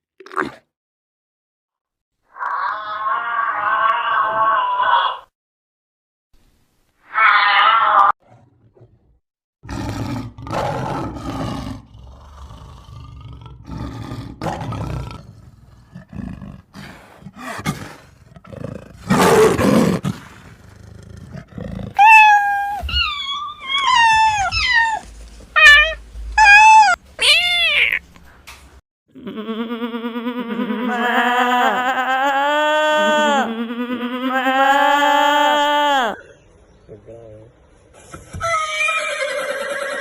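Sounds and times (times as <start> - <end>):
animal growling and roaring: 2.3 - 5.3, 7.1 - 22.0
short high meow-like calls: 25.6 - 28.0.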